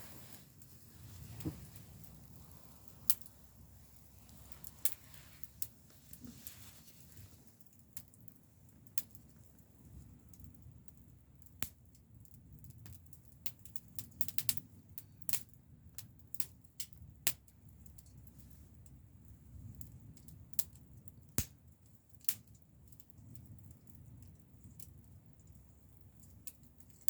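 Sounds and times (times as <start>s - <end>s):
low steady rumble: 0.0s - 7.6s
wood fire crackling: 0.0s - 27.0s.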